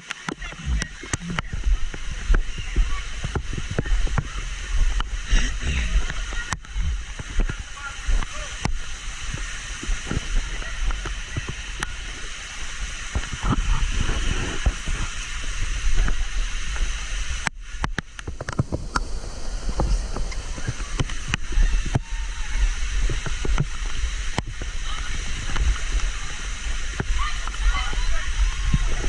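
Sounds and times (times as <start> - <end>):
waterfall and stream rushing: 0.0 - 29.0
low rumble: 18.1 - 29.0.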